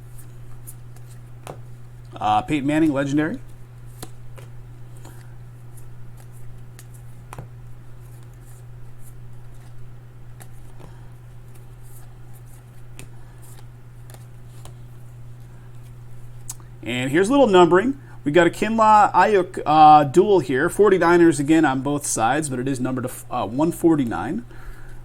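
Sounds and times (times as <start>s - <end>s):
steady low hum: 0.0s - 25.0s
cards clicking and sliding: 3.4s - 16.6s.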